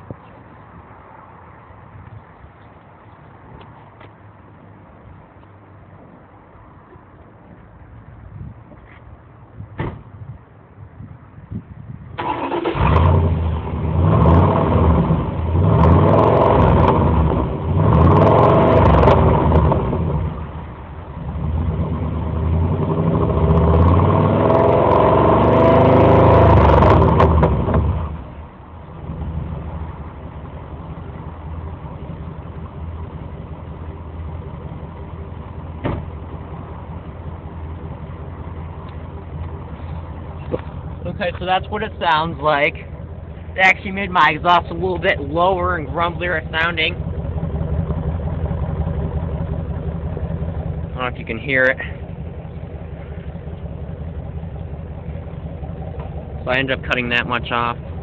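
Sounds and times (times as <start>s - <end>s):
engine starting and revving: 12.2s - 20.4s, 21.4s - 28.2s
engine idling: 12.2s - 58.0s.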